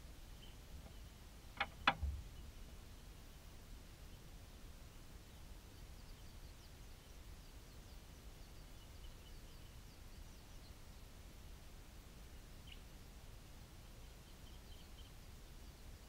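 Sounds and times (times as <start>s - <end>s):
low outdoor rumble: 0.0s - 16.0s
distant bird chirping: 0.3s - 3.2s.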